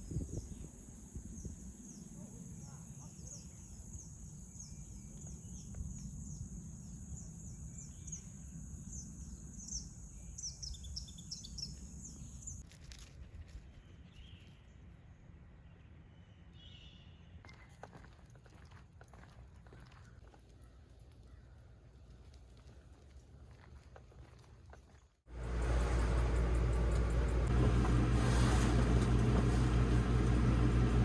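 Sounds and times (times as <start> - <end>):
high insect drone: 0.0 - 12.6.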